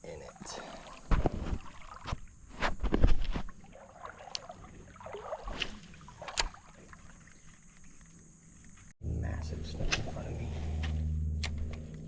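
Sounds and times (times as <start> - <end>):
knocks and thumps on a boat: 1.1 - 2.2.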